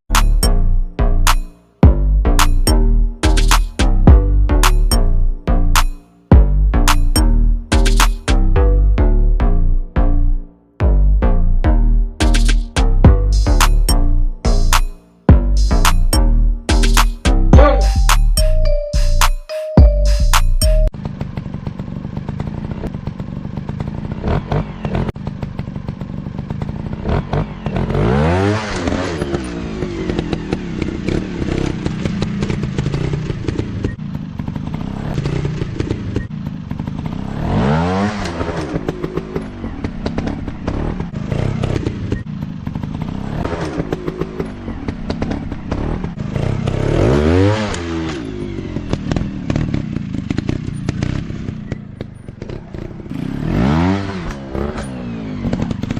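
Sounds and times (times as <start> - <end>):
dirt bike engine revving: 21.0 - 55.9.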